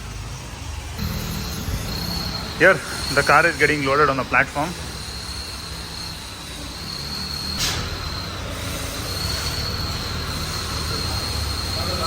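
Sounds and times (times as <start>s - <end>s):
loading machinery whining: 0.0s - 12.0s
low mechanical rumble: 0.0s - 12.0s
sharp metal clank: 7.5s - 8.4s.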